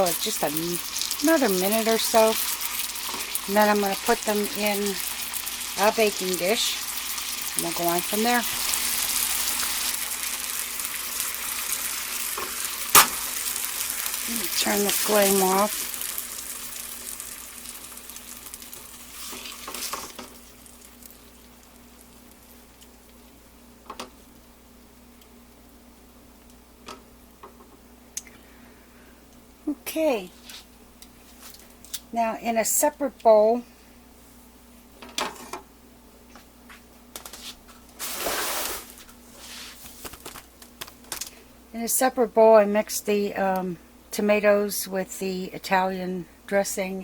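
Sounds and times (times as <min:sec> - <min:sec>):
chicken sizzling in a pan: 0:00.0 - 0:22.8
utensil scraping a pan: 0:38.0 - 0:39.8.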